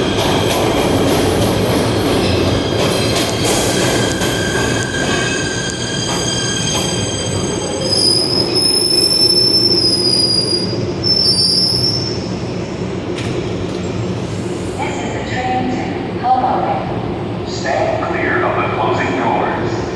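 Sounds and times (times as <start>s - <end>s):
steel wheels squealing on rails: 0.0s - 12.4s
subway train rumbling: 0.0s - 19.9s.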